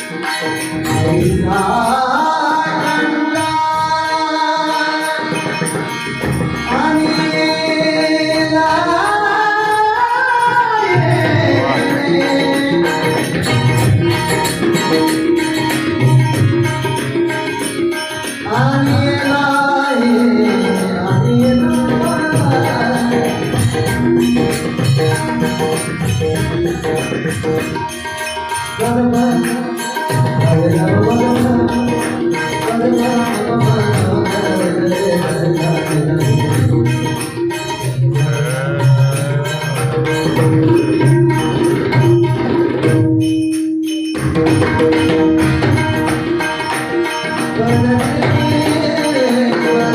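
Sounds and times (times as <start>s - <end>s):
tabla percussion: 0.0s - 49.9s
man singing: 0.8s - 5.9s, 6.6s - 13.7s, 18.4s - 25.7s, 28.8s - 42.0s, 47.3s - 49.9s
sustained accompanying notes: 28.8s - 41.5s.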